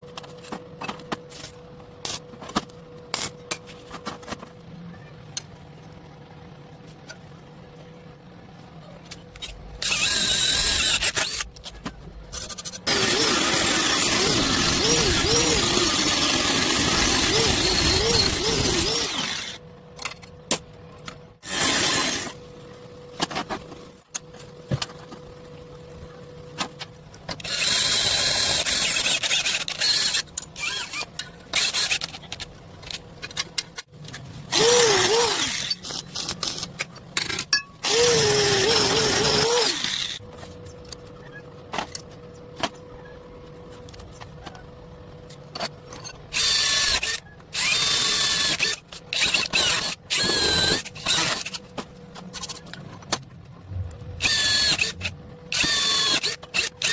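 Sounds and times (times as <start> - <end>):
power tool whining: 9.8 - 11.5, 12.4 - 19.6, 34.5 - 35.8, 37.8 - 40.2, 46.3 - 51.6, 54.2 - 56.9.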